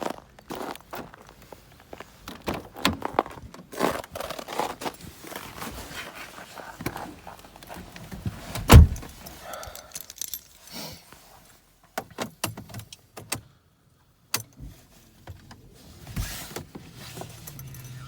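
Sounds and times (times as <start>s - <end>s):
car door shutting: 8.5s - 9.2s
keys jangling: 8.7s - 10.7s, 17.1s - 18.0s.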